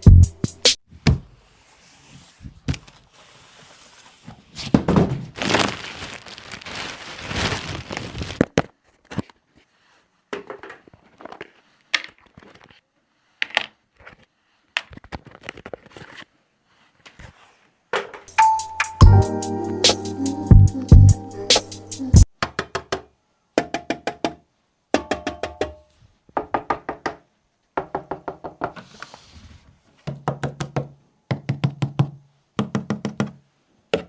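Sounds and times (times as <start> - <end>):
cardboard and plastic crinkling: 2.8 - 9.4.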